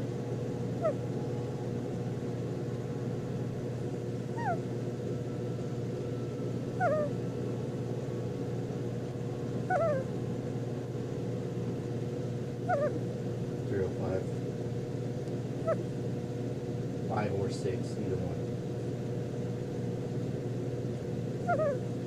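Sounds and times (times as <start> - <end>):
steady low hum: 0.0 - 22.0
puppy snoring with squeaky whistles: 6.8 - 7.1, 21.5 - 21.8.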